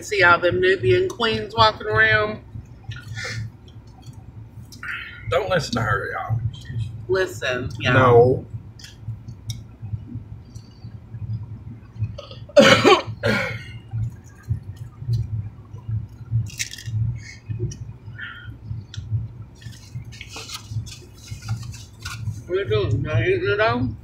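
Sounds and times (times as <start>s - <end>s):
cough-like vocal sound: 12.2s - 13.8s.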